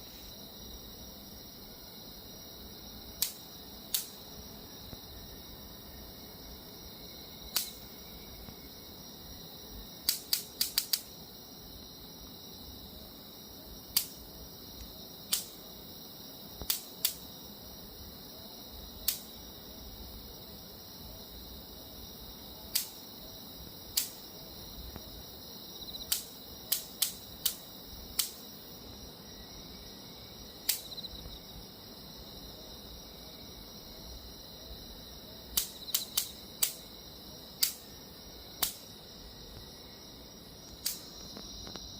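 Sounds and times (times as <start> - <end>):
bug zapper snapping: 3.2 - 4.2, 7.5 - 7.8, 10.0 - 11.1, 15.3 - 15.6, 16.6 - 17.2, 22.7 - 23.0, 23.9 - 24.2, 26.0 - 27.6, 28.2 - 28.4, 30.7 - 30.9, 38.6 - 38.8.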